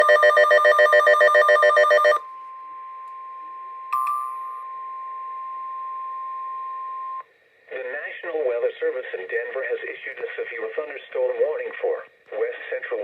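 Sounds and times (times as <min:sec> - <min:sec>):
warning alarm tone: 0:00.0 - 0:02.2.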